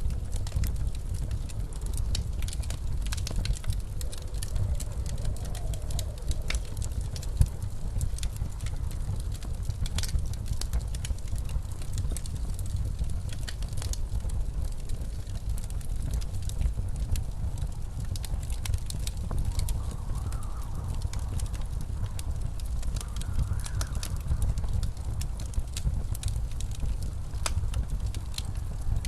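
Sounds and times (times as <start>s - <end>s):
wood fire crackling and popping: 0.0s - 29.0s
blizzard wind rushing: 1.6s - 9.1s, 17.9s - 29.0s.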